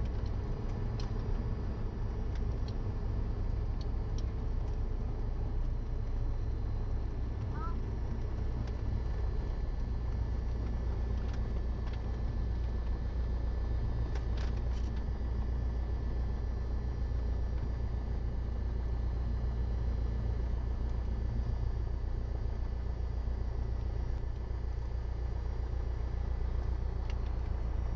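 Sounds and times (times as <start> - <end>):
aircraft engine droning: 15.0 - 27.9.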